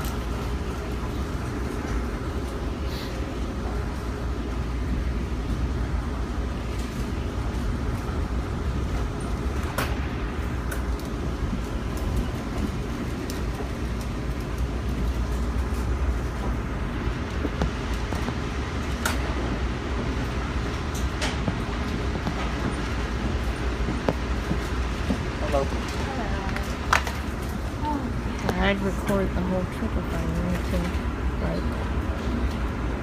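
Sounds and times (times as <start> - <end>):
train rumbling: 0.0 - 33.0.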